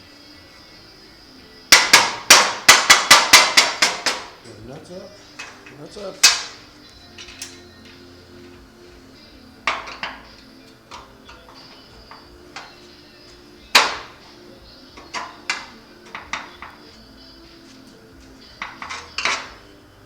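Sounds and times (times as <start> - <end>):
loud ringing metal strikes: 1.7 - 4.3
light metal taps: 14.9 - 17.0.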